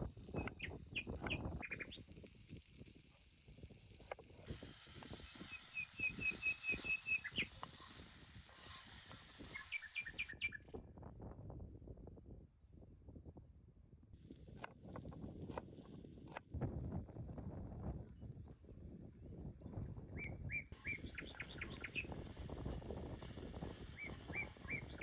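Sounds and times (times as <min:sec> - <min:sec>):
small bird chirping: 0:00.3 - 0:02.2, 0:05.2 - 0:10.6, 0:20.2 - 0:22.8, 0:23.6 - 0:25.0.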